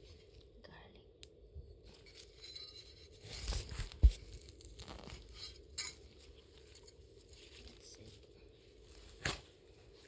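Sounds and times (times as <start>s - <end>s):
plant tearing from soil: 3.4s - 5.5s.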